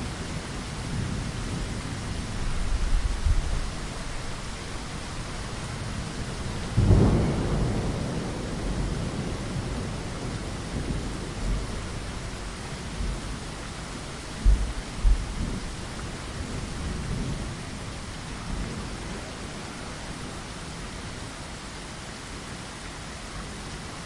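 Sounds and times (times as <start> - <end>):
heavy rain on a window: 0.0 - 24.0
thunder rumbling: 5.8 - 12.2.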